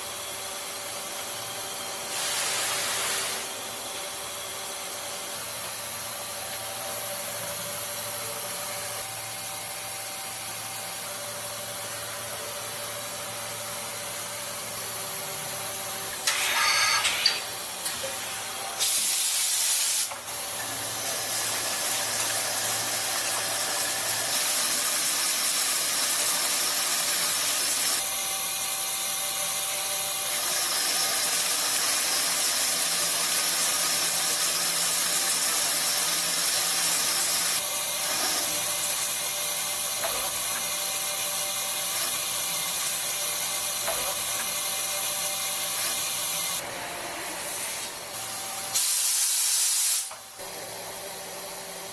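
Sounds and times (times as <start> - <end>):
coolant spraying hiss: 2.1 - 3.4, 18.8 - 20.1, 48.8 - 50.1.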